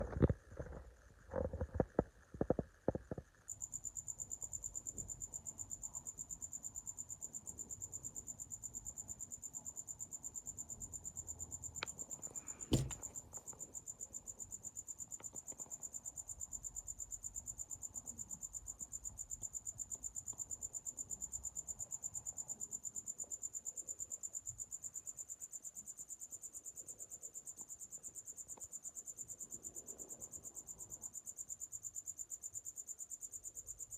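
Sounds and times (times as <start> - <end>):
cricket chirping: 0.0 - 33.9
handling knocks: 12.7 - 13.1.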